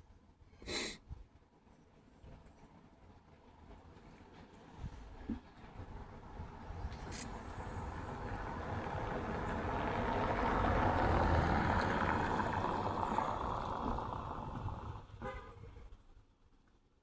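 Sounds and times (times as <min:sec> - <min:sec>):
vehicle passing by: 0:06.6 - 0:15.1.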